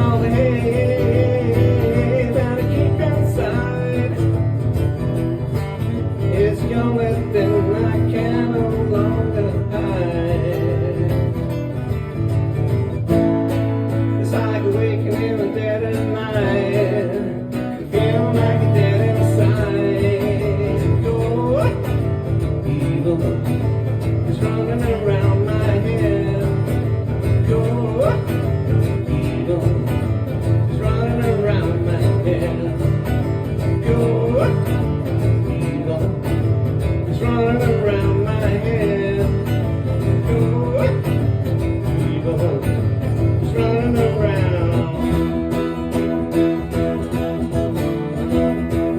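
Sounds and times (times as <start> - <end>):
country acoustic guitar music: 0.0 - 48.9.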